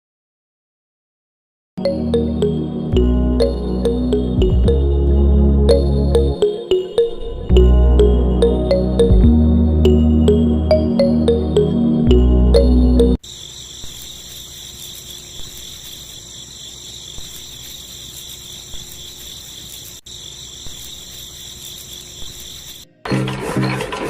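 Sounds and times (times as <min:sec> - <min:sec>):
background music: 0:01.8 - 0:13.2
insects chirring: 0:13.2 - 0:23.0
small engine starting up: 0:23.0 - 0:24.0.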